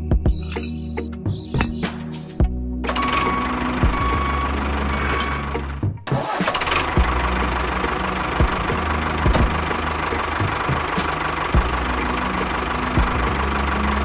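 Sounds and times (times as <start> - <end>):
tractor engine running: 2.8 - 14.0.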